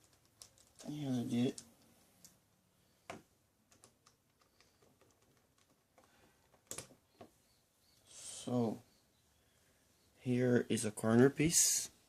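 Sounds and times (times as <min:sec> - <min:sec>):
plastic puzzle pieces clicking: 0:00.0 - 0:00.9, 0:03.7 - 0:07.0.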